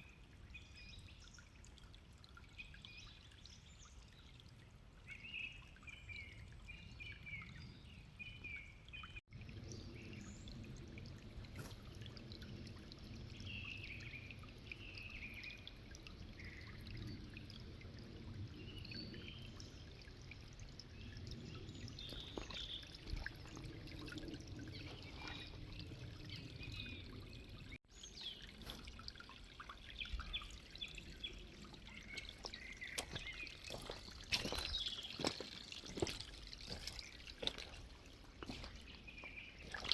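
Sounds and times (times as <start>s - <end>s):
water pouring and trickling: 0.0s - 39.9s
small birds chirping: 21.0s - 29.0s, 29.6s - 39.9s.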